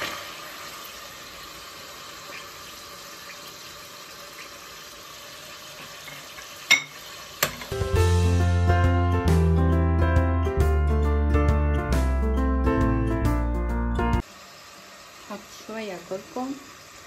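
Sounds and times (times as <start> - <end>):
onion and chicken sizzling in oil: 0.0 - 8.4, 14.2 - 17.0.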